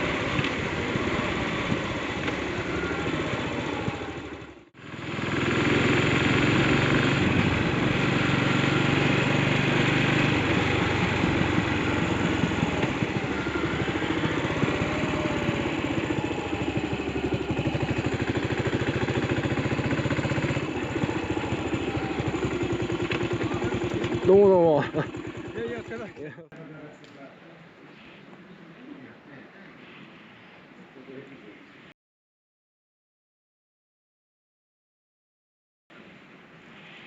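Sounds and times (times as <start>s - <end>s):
motorcycle engine running: 0.0s - 26.4s.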